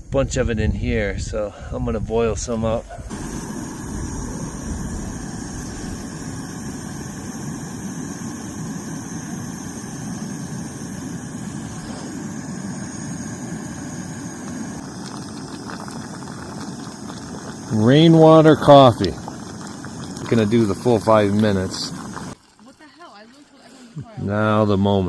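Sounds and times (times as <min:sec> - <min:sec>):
stove burner rushing: 0:02.6 - 0:22.4.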